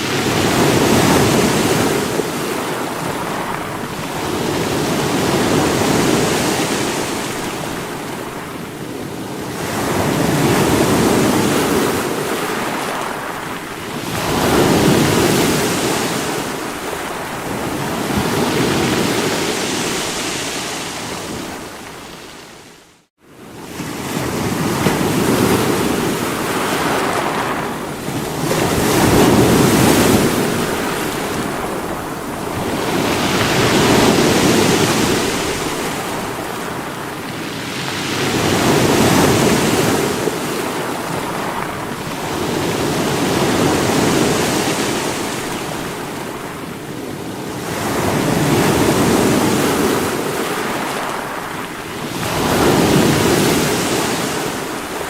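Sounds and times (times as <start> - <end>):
sea waves breaking on rocks: 24.1 - 46.5.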